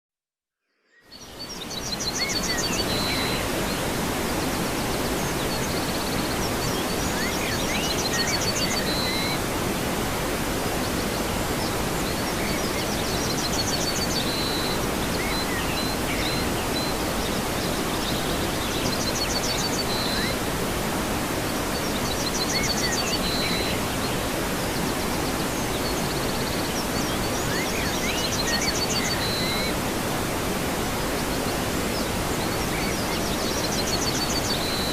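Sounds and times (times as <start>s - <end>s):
waterfall rushing water: 1.4s - 34.9s
bird's short high song: 7.1s - 9.4s, 18.0s - 20.4s, 26.8s - 29.8s.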